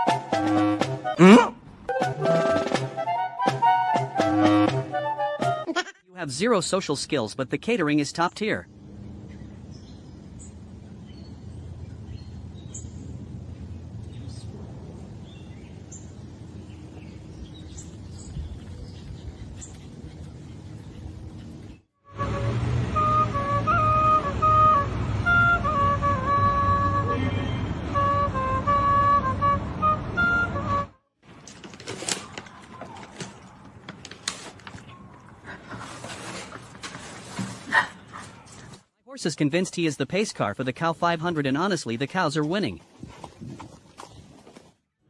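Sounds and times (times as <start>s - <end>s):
flute music: 0.0s - 5.8s, 22.0s - 31.1s
low outdoor rumble: 8.6s - 21.8s
bird chirps: 15.2s - 21.8s.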